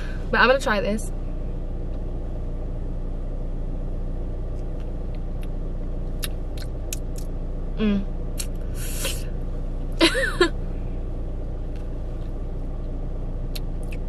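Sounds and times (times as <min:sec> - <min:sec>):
car engine idling: 0:00.0 - 0:14.0
short hum of voice: 0:07.8 - 0:08.1.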